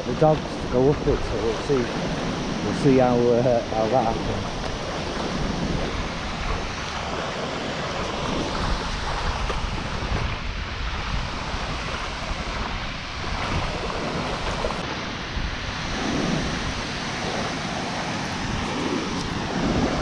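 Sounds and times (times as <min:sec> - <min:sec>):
waterfall rushing: 0:00.0 - 0:07.8
wind buffeting microphone: 0:00.0 - 0:20.0.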